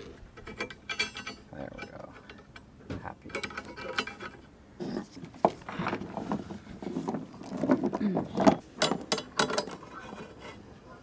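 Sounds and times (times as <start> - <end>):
anchor chain clattering: 0.4 - 2.6.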